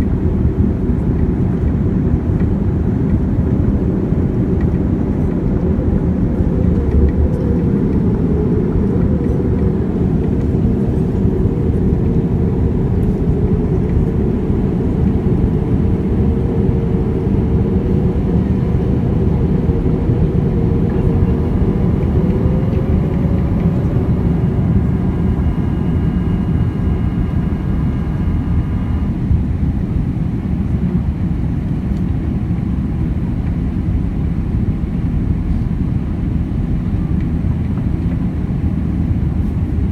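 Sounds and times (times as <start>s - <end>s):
jet engine cabin rumble: 0.0s - 39.9s
faint wavering whine: 4.7s - 29.4s.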